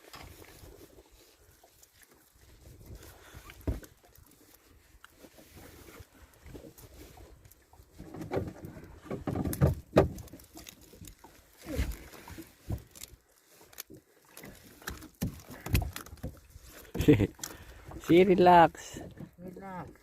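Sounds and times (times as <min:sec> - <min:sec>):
fish thrashing thumps and slaps: 0:08.0 - 0:13.1, 0:14.7 - 0:17.5.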